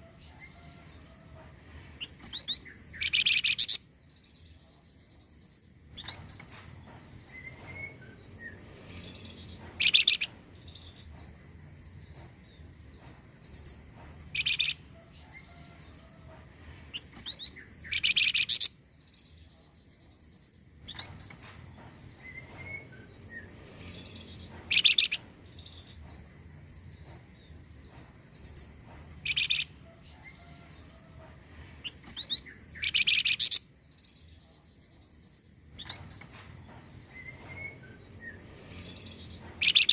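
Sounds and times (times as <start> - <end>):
soft bird twittering: 2.0 - 6.5, 17.0 - 20.3, 22.2 - 25.9, 31.8 - 34.1.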